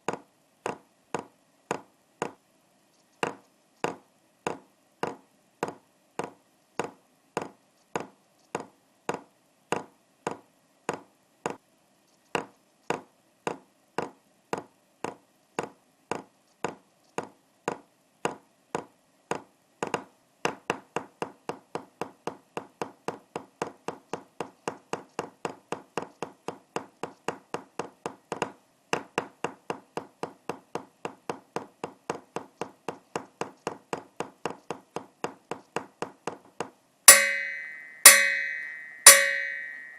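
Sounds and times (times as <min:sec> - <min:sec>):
sharp percussive taps: 0:37.1 - 0:39.9.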